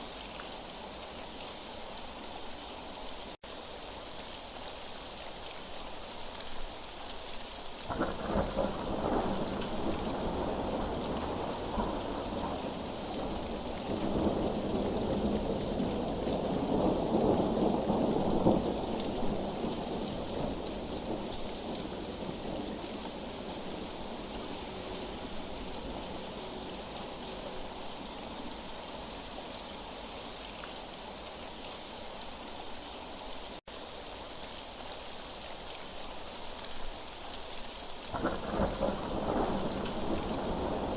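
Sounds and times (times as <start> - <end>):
rain hiss: 0.0 - 40.9
rolling thunder: 7.9 - 24.6, 38.1 - 40.9.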